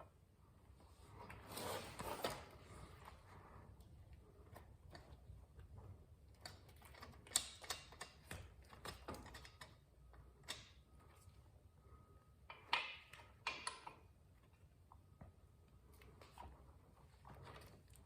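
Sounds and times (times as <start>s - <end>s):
tools and parts clicking: 6.3s - 10.8s, 12.5s - 14.1s.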